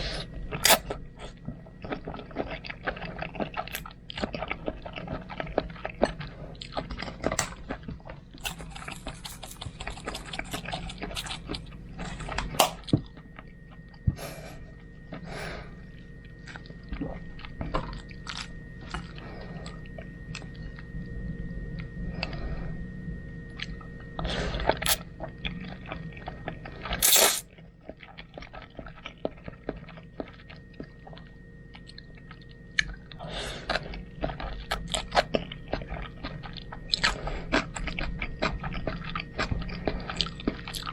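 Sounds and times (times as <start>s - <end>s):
person chewing food: 0.0s - 13.5s, 24.5s - 27.4s, 28.4s - 40.9s.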